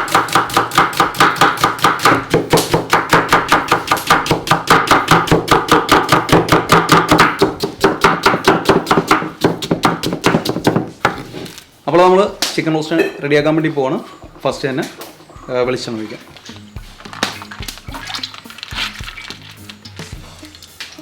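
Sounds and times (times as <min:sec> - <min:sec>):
knife chopping on cutting board: 0:00.0 - 0:11.6.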